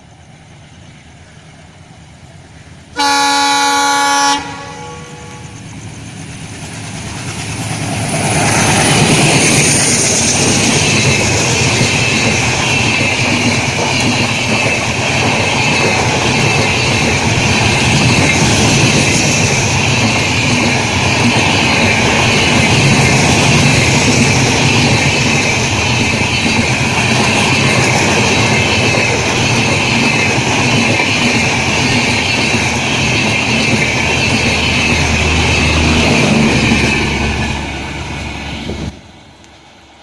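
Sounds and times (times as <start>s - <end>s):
train rumbling with wheel clatter: 0.0s - 40.0s
locomotive horn blast: 3.0s - 5.6s.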